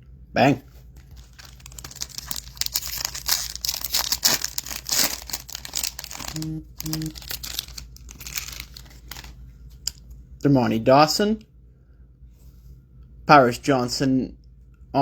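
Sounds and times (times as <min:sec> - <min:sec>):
foil wrapper tearing and crinkling: 0:01.0 - 0:09.4.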